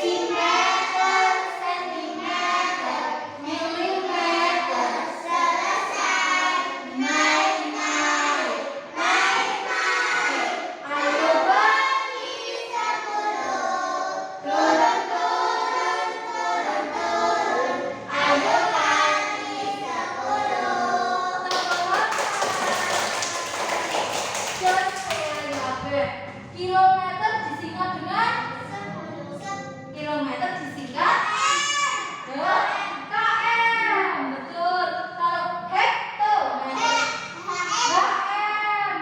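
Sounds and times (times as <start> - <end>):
children singing: 0.0 - 21.5
clapping: 21.5 - 25.7.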